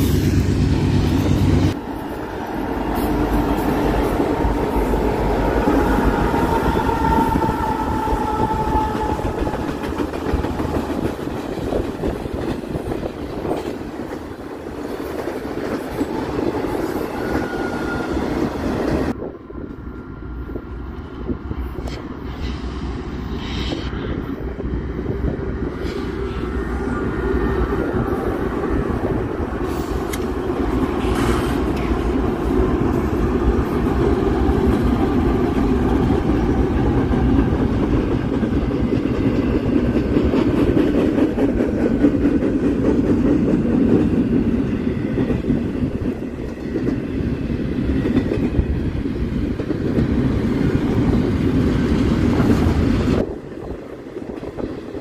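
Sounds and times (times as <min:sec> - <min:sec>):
train wheels rumbling on rail: 0:00.0 - 0:55.0
train wheels clickety-clack: 0:06.0 - 0:19.2, 0:29.6 - 0:55.0.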